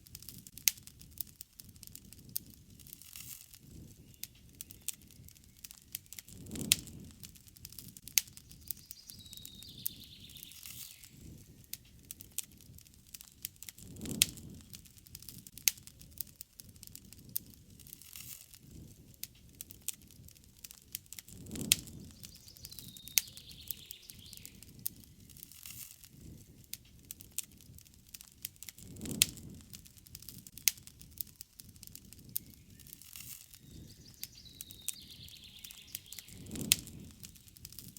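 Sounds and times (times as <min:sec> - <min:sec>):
campfire wood crackling: 0:00.0 - 0:37.9
bird call: 0:22.2 - 0:24.7, 0:32.4 - 0:36.6.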